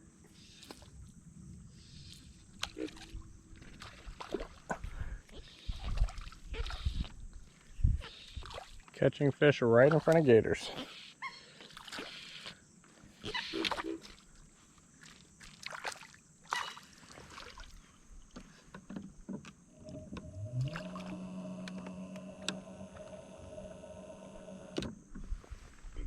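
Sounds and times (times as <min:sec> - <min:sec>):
water splashing: 0:02.8 - 0:04.8, 0:15.4 - 0:17.8, 0:19.9 - 0:22.0
motor hum: 0:19.7 - 0:25.6.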